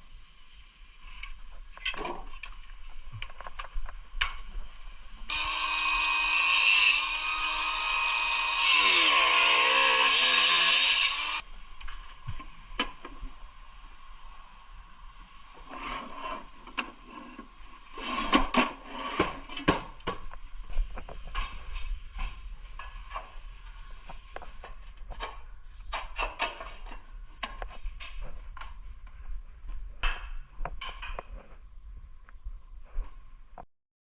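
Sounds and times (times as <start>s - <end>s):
hand tool scraping tile: 15.6s - 19.8s.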